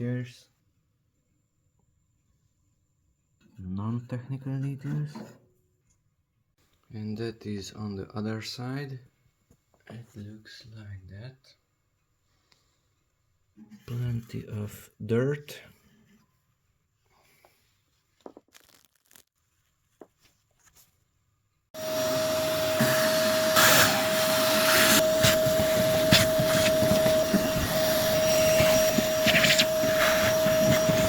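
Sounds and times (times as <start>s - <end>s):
vacuum cleaner running: 21.8s - 31.0s.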